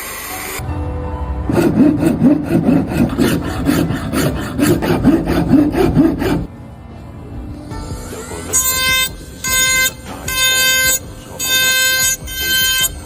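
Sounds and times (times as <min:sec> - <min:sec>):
hand file rasping wood: 0:01.6 - 0:06.5, 0:08.1 - 0:13.0.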